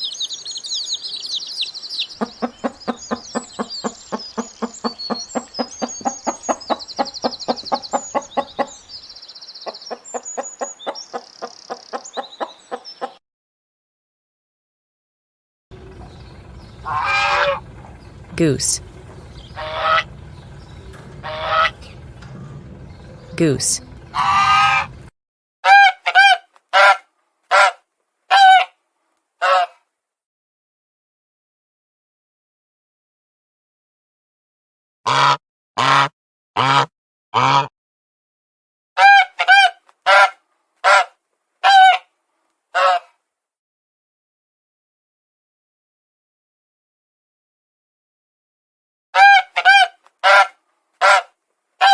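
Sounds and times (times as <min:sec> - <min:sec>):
high chirping: 0:00.0 - 0:12.0, 0:15.8 - 0:25.0
chickens clucking: 0:00.6 - 0:13.2, 0:15.7 - 0:25.1
goose honking: 0:15.7 - 0:25.1, 0:35.1 - 0:37.7, 0:39.0 - 0:42.0, 0:49.2 - 0:51.9.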